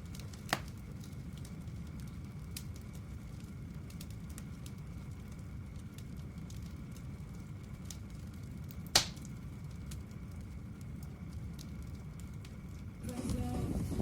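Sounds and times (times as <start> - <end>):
bonfire crackling: 0.0 - 14.0
low steady rumble: 0.0 - 14.0
loud fire pop: 8.9 - 9.2.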